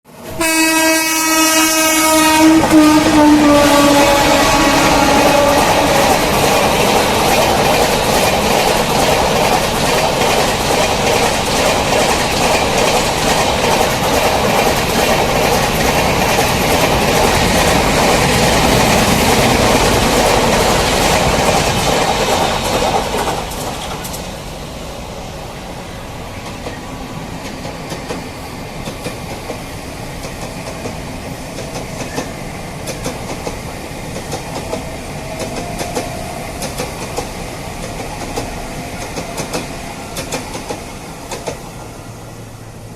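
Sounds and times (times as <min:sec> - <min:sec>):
train wheel and track rumble: 0:00.1 - 0:42.9
wheels clicking over rail joints: 0:05.0 - 0:24.4, 0:26.4 - 0:41.7.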